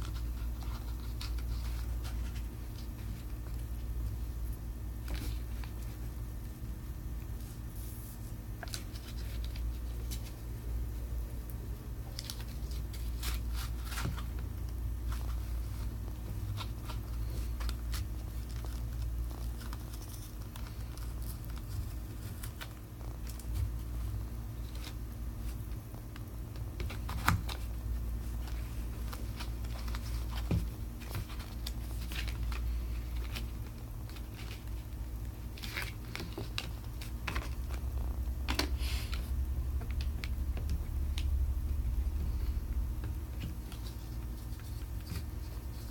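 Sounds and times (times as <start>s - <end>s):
low hum: 36.8s - 45.9s.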